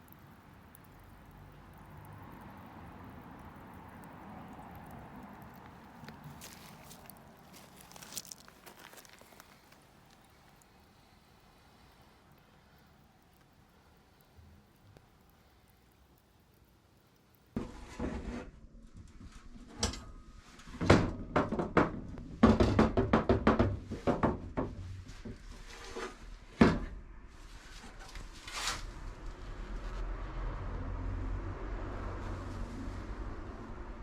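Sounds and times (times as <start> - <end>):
objects knocking and thunking: 20.6 - 27.0
low rumble: 26.9 - 34.0.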